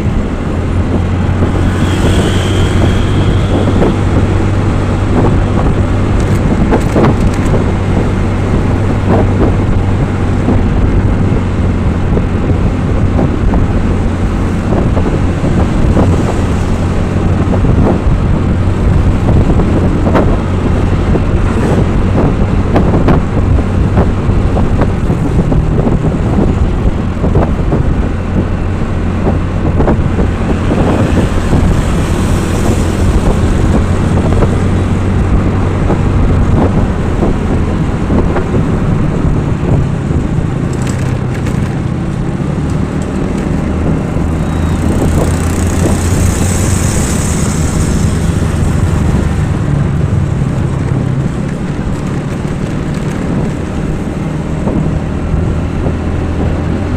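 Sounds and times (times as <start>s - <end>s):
vehicle engine running: 0.0s - 56.9s
small clicks and rattles: 6.2s - 7.6s, 40.7s - 41.8s, 51.4s - 53.6s.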